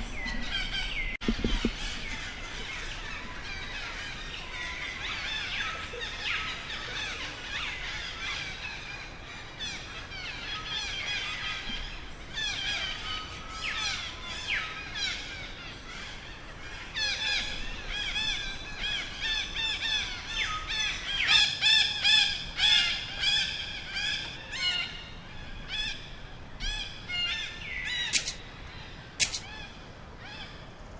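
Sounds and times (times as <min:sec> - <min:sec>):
sharp clicks: 0:28.1 - 0:28.4, 0:29.2 - 0:29.5.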